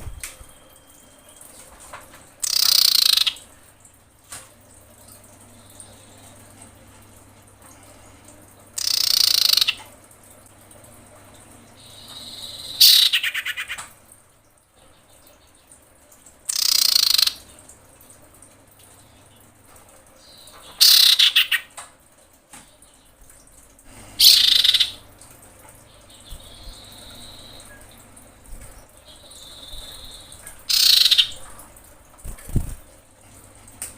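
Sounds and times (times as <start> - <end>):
bird calling with rattling trills: 2.4 - 3.4, 8.8 - 9.9, 11.8 - 13.9, 16.5 - 17.5, 20.2 - 21.7, 24.2 - 25.0, 28.9 - 31.5.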